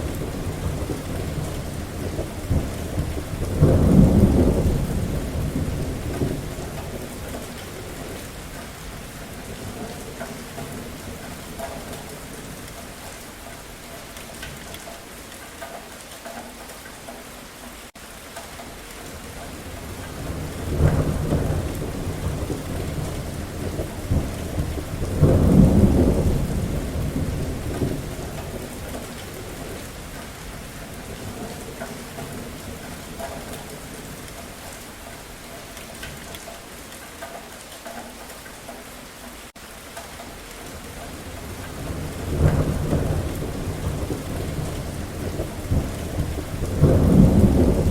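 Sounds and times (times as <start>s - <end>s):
deep rolling thunder: 0.0s - 8.4s, 19.6s - 34.7s, 41.1s - 47.9s
steady rain: 0.0s - 47.9s.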